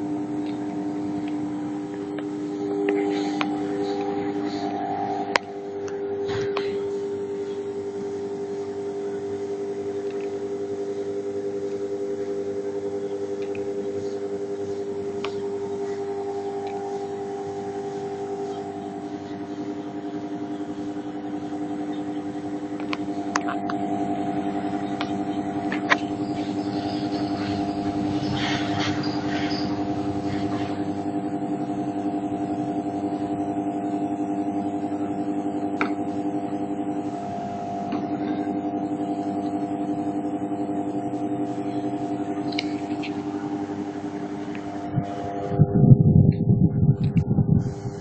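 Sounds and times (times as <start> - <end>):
small electric motor humming: 0.0 - 48.0.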